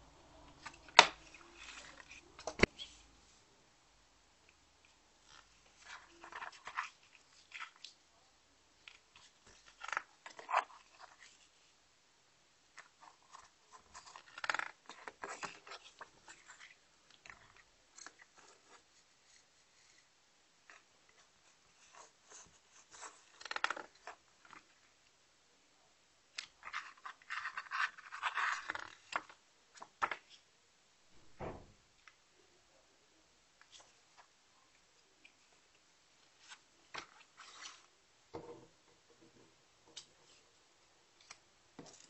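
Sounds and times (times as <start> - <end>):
cd package crinkling and rustling: 26.4 - 30.4.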